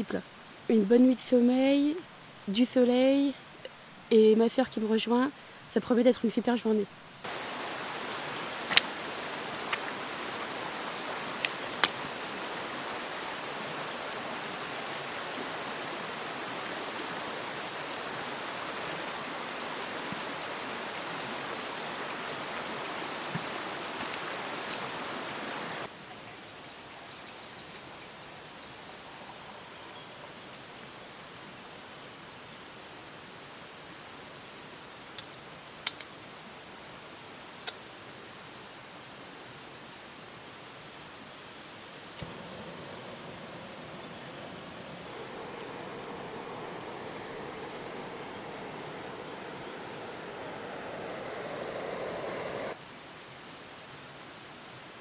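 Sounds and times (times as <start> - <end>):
hiss: 42.1 - 52.8
high twittering: 42.2 - 52.8
outdoor rushing noise: 42.2 - 52.8.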